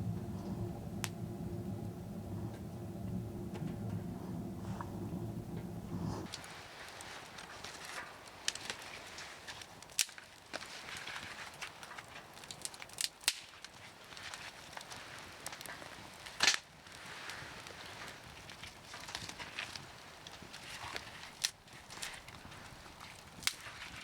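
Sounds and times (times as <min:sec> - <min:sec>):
firewood crackling and popping: 0:00.0 - 0:06.4.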